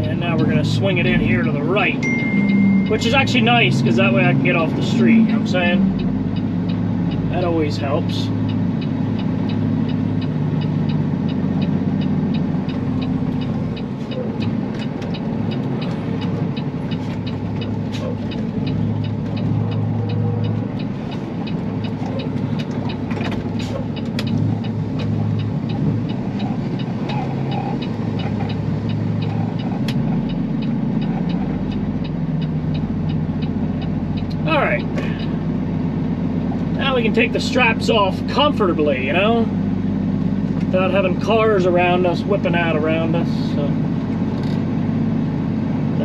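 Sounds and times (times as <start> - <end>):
truck diesel engine running: 0.0 - 46.0
light ticking: 1.4 - 38.1.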